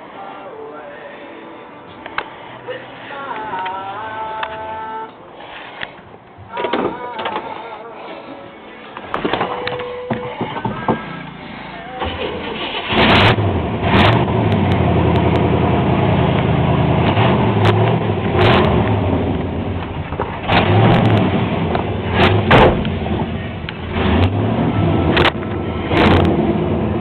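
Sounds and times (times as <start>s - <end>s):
car engine revving: 10.8s - 27.0s.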